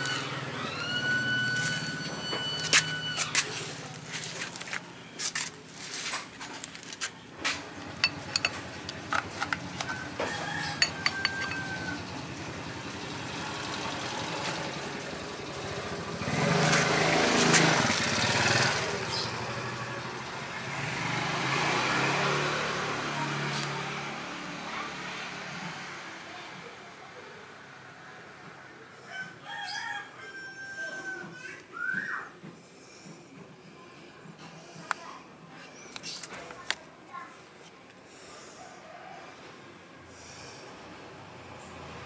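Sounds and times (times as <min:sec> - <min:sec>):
vehicle engine revving: 0:00.0 - 0:04.0, 0:07.6 - 0:26.6.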